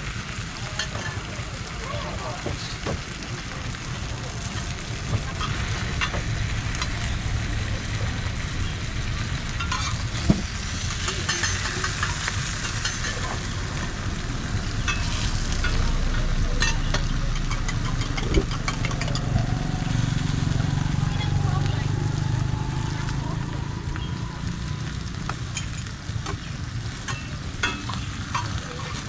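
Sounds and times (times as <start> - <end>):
bread sizzling in oil: 0.0 - 29.0
low hum: 4.7 - 26.0.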